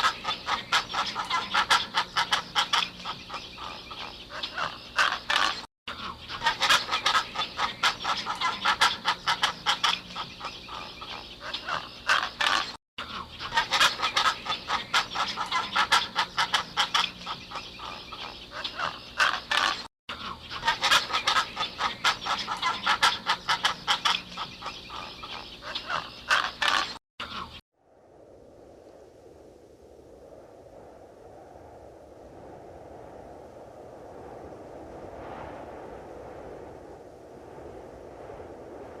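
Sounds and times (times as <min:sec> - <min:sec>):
flock of birds calling: 0:00.0 - 0:27.6.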